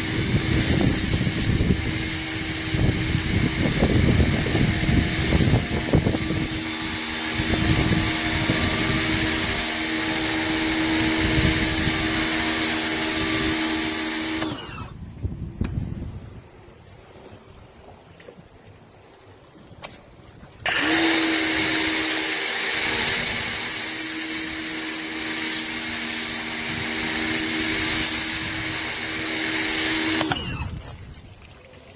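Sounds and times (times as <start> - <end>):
water jet hissing: 0.0 - 14.9, 20.7 - 30.8
pressure washer motor hum: 0.0 - 15.0, 20.6 - 30.8.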